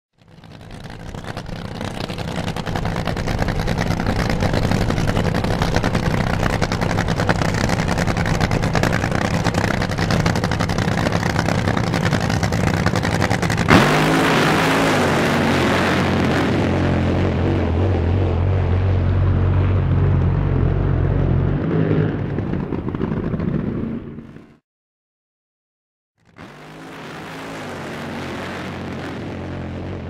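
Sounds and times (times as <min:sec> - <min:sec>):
racing boat engine firing pulses: 0:00.2 - 0:24.6, 0:26.3 - 0:30.0
sharp crack: 0:02.2 - 0:17.8.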